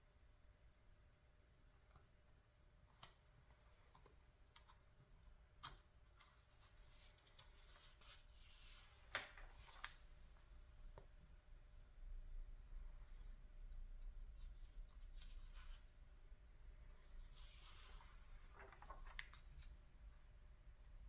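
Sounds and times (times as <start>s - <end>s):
paper rustle: 17.3s - 20.4s
paper pages clicking: 18.5s - 19.7s.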